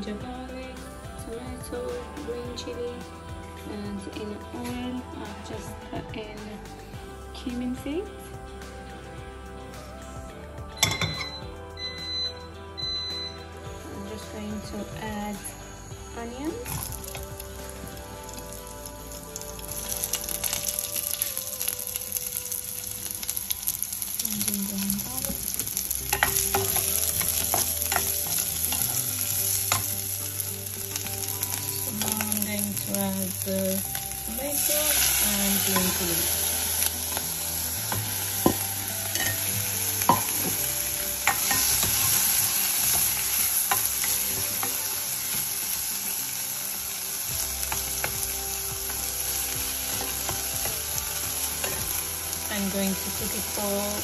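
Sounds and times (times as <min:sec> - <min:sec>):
food sizzling in hot oil: 0:10.8 - 0:11.2, 0:13.9 - 0:54.0.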